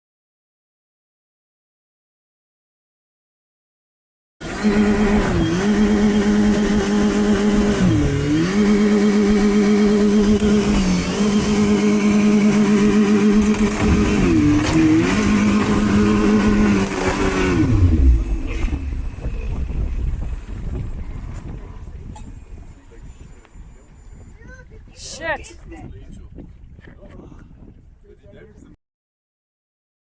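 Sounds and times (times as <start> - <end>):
outboard motor running: 4.4 - 22.0.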